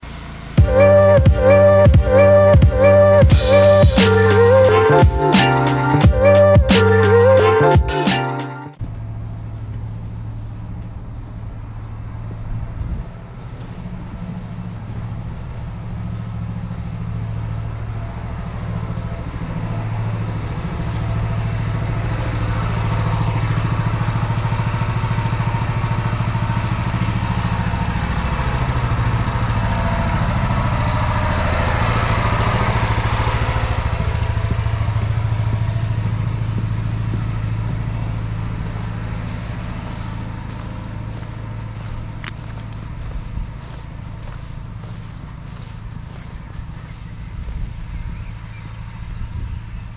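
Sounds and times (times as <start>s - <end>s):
small petrol engine running: 14.0s - 49.7s.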